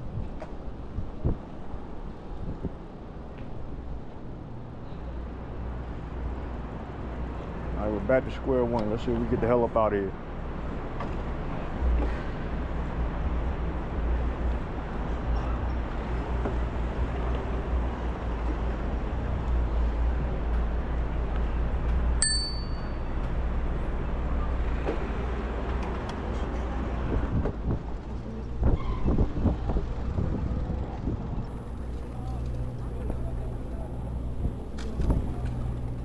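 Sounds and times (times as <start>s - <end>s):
wind and road noise: 0.0s - 36.0s
bicycle bell ding: 22.2s - 23.1s.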